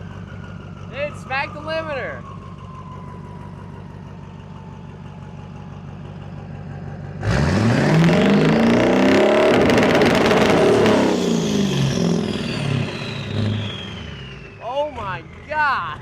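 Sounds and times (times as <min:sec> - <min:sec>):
diesel engine revving loudly: 0:07.0 - 0:16.0.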